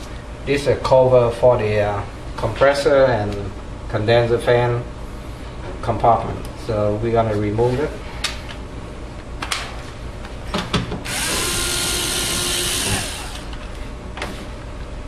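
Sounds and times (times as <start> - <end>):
power drill spinning: 11.1 - 13.6.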